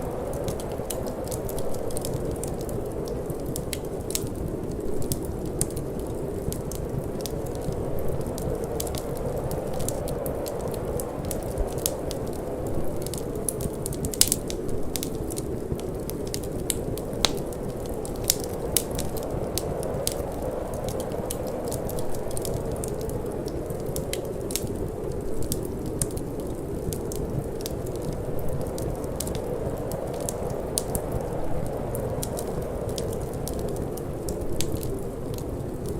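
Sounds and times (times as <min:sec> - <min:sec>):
wood fire crackling: 0:00.0 - 0:35.9.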